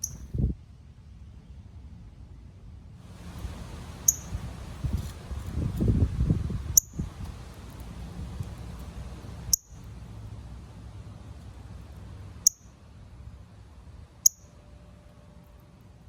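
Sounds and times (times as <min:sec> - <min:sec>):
bird chip calls: 0:00.0 - 0:00.3, 0:04.0 - 0:04.4.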